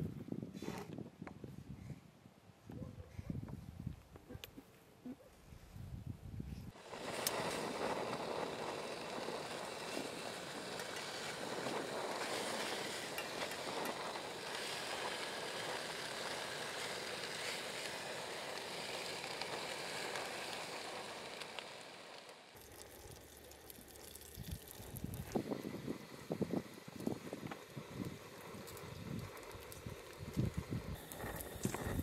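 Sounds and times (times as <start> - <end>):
pork fat sizzling in a grill pan: 6.8 - 32.0.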